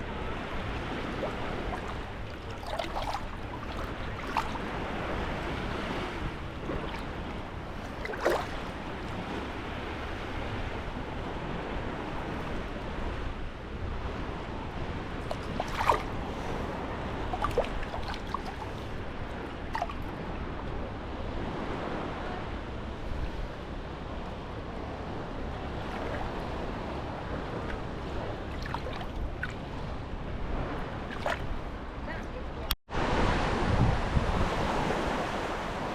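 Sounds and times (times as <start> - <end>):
sea waves washing onto beach: 0.0 - 35.9.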